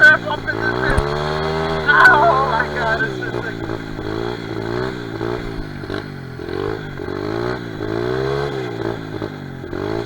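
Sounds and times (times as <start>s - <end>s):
motorbike engine revving: 0.0s - 10.0s.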